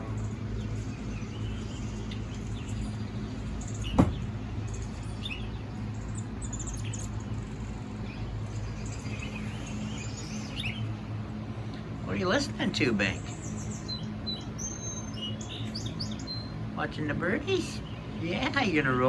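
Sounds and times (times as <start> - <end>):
birds chirping through phone speaker: 0.0 - 16.7
low hum: 0.0 - 19.0
sharp knock: 3.9 - 4.2.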